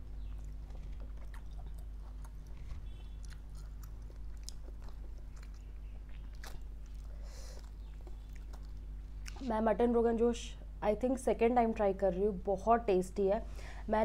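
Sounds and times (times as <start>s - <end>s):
close-miked chewing: 0.0s - 9.5s.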